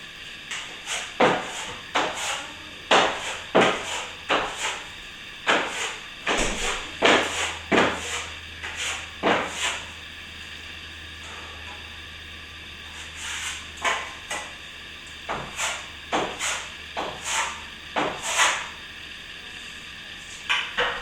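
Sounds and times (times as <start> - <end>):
trowel scraping wet plaster: 0.5 - 4.9, 5.5 - 9.9, 12.9 - 14.2, 15.3 - 18.8.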